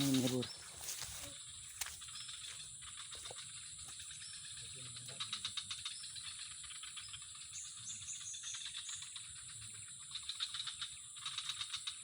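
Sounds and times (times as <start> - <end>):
falling bird chirps: 0.0 - 2.7
high insect drone: 0.0 - 11.9.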